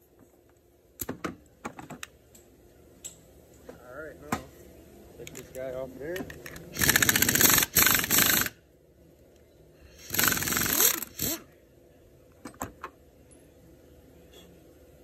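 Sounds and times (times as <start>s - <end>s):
tool rattling: 6.8s - 8.5s.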